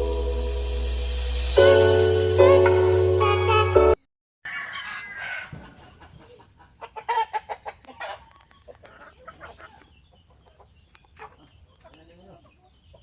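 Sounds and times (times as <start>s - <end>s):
chickens clucking: 4.5s - 13.0s.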